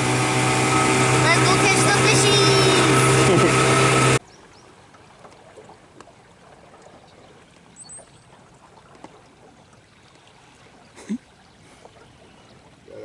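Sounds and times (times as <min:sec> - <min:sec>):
faint running river water: 0:00.0 - 0:13.0.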